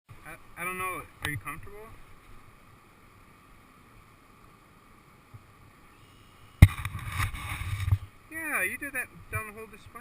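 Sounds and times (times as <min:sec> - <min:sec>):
rough low noise: 0:00.1 - 0:08.5.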